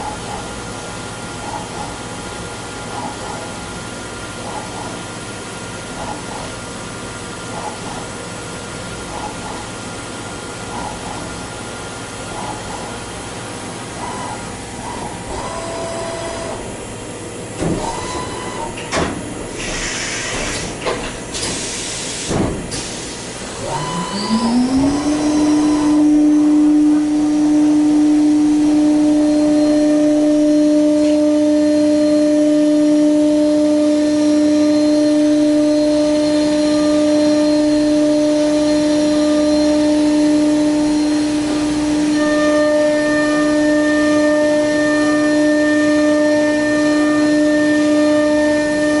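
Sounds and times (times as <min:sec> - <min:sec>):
lathe spindle whine and hum: 0:00.0 - 0:22.2, 0:22.8 - 0:49.0
brief machine beeps: 0:17.9 - 0:18.8, 0:23.7 - 0:24.6.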